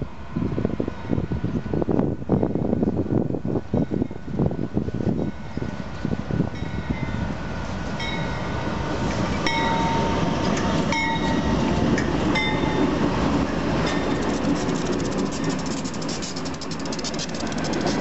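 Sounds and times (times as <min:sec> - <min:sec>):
diesel locomotives rumbling: 0:00.0 - 0:18.0
wheels clattering on rails: 0:09.0 - 0:18.0.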